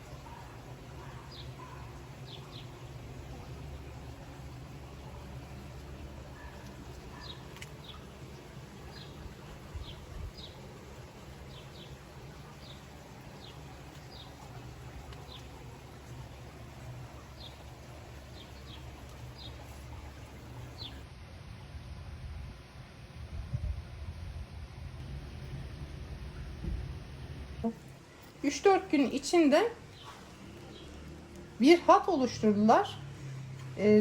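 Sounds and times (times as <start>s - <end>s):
steady low rumble: 2.2s - 28.0s
small bird chirping: 13.4s - 15.6s, 18.3s - 21.0s.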